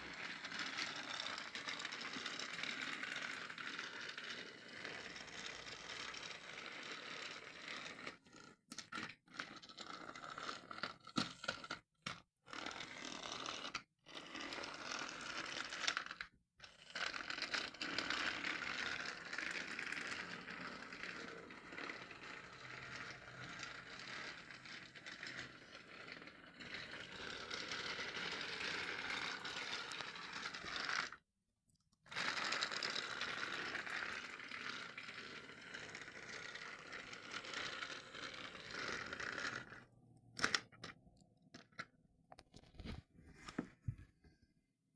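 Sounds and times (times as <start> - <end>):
toy train electric motor whirring: 0.0 - 8.5, 12.5 - 31.2, 32.1 - 40.7
wheels rattling on plastic track: 0.0 - 10.7, 12.5 - 31.2, 32.1 - 41.0.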